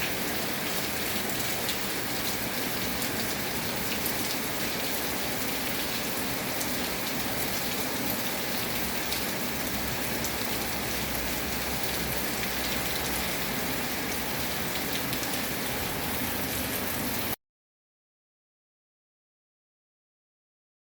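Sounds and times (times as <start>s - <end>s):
rainfall hiss: 0.0s - 17.4s.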